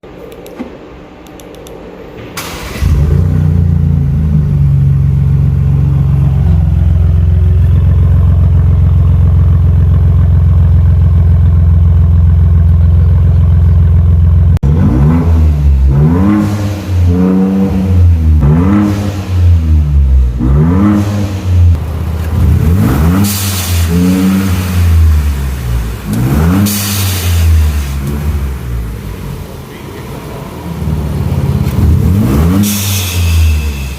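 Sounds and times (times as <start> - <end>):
engine starting and idling: 2.2 - 4.0
engine revving: 2.4 - 12.2, 14.4 - 29.5, 30.2 - 33.9
blow-off valve hiss: 32.6 - 33.9.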